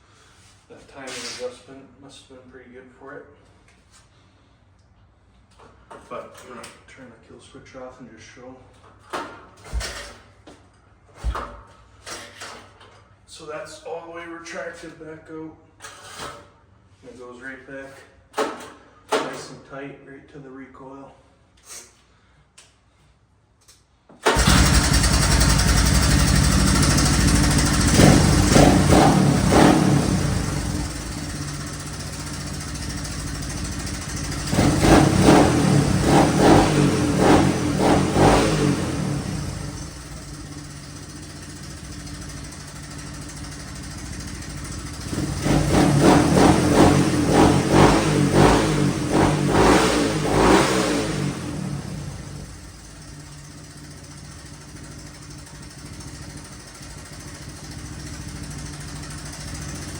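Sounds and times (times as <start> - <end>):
motorcycle engine starting and idling: 24.2 - 59.9
motorcycle engine revving: 24.3 - 59.9.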